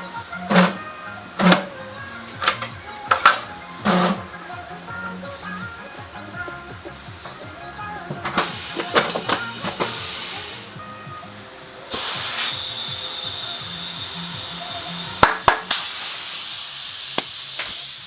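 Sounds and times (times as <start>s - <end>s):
compressed air hissing from hose: 0.0s - 6.6s, 8.1s - 10.9s, 11.8s - 18.0s
background music: 0.0s - 18.0s
tool clicks and clatter: 2.3s - 4.3s, 8.2s - 10.7s.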